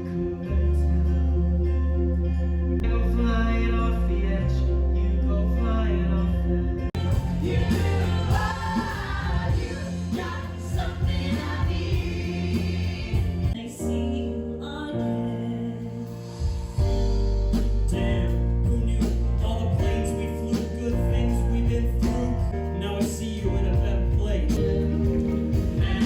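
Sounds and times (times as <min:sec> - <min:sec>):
steady bass: 0:00.0 - 0:26.0
choir-like singing: 0:07.0 - 0:14.3.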